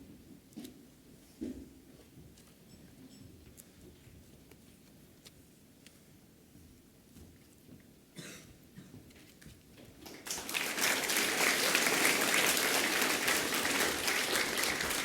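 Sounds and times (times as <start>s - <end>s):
audience applauding: 10.1s - 15.0s.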